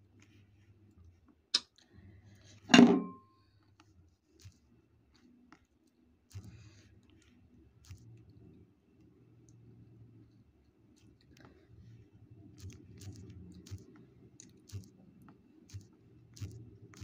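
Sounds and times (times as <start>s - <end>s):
crunchy chewing: 5.2s - 8.4s, 12.5s - 17.0s.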